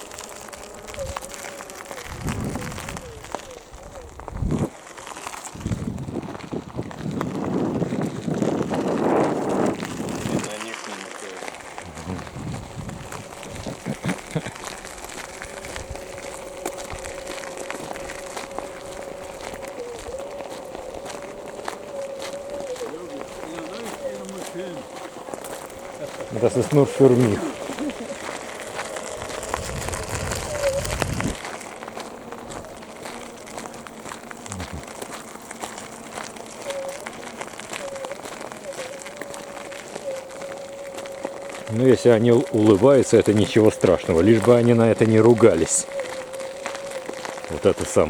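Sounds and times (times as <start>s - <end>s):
footsteps crunching on leaves: 0.0s - 48.0s.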